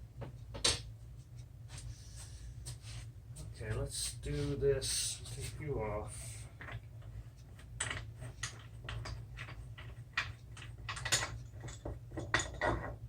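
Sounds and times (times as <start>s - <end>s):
steady low hum: 0.0s - 13.0s
clamp clicking and knocking: 7.7s - 13.0s
wood and metal knocking together: 7.8s - 13.0s.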